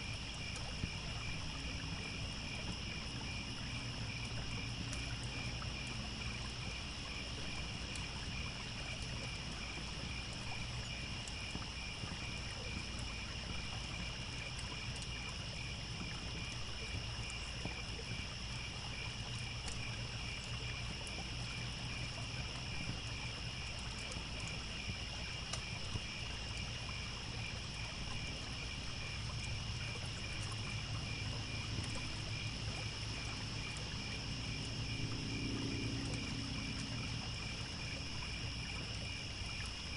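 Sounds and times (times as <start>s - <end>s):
crickets chirping: 0.0s - 39.9s
trickling stream: 0.0s - 39.9s
campfire crackling: 22.6s - 27.1s.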